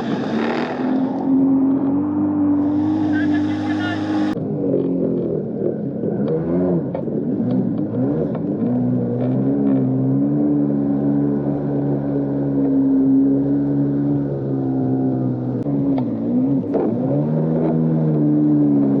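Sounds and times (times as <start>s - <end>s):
jet ski engine running: 0.0s - 19.0s.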